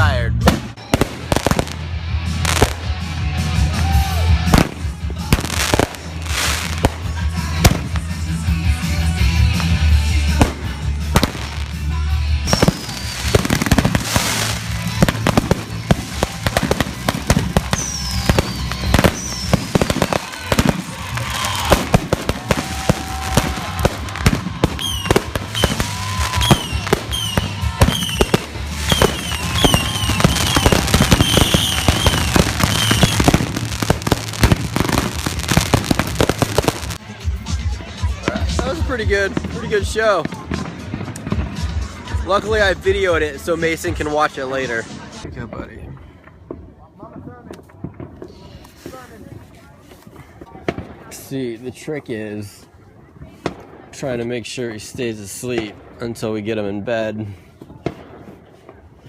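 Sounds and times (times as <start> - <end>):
firework bangs and crackling bursts: 0.0 - 59.0
falling firework whistles: 12.5 - 14.7, 17.4 - 37.0
rapid short whistles: 24.8 - 25.8.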